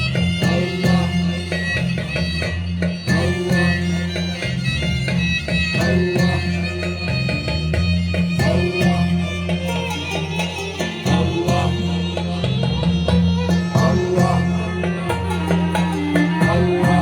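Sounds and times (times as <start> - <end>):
drum strokes: 0.0 - 17.0
held bass notes: 0.0 - 17.0
violin melody: 6.6 - 17.0.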